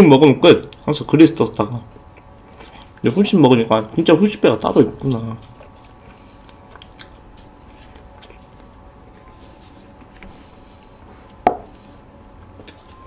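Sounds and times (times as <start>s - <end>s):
close-miked chewing: 0.6s - 13.0s.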